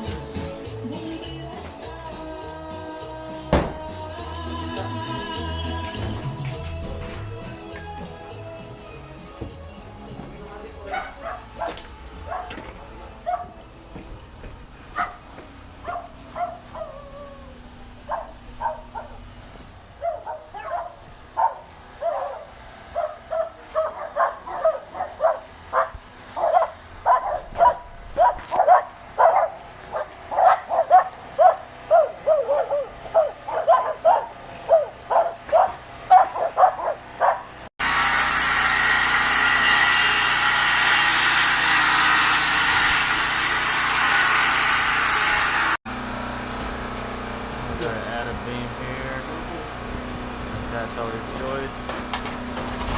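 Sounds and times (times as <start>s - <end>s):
dog barking: 10.9s - 13.6s, 14.9s - 15.2s, 15.8s - 17.0s, 18.1s - 19.2s, 20.0s - 37.5s.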